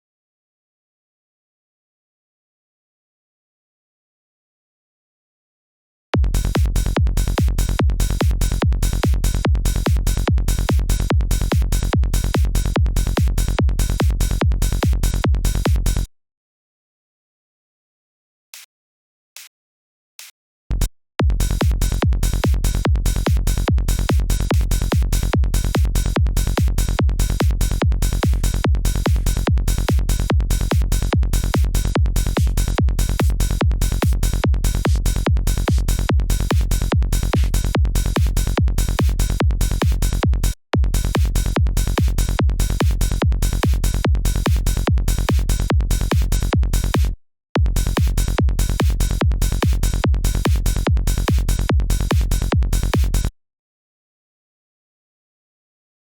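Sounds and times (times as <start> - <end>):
electronic kick drum and bass: 6.2 - 16.1, 21.2 - 53.3.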